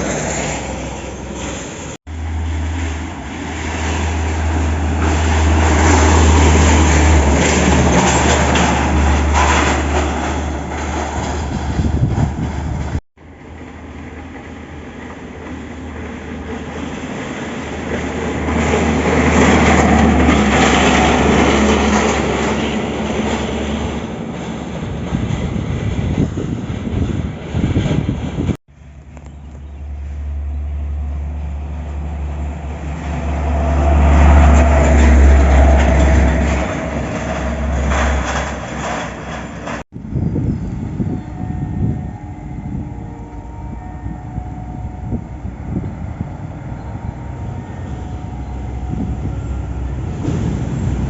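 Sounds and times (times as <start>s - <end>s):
heavy truck driving past: 0.0s - 13.0s, 41.9s - 51.0s.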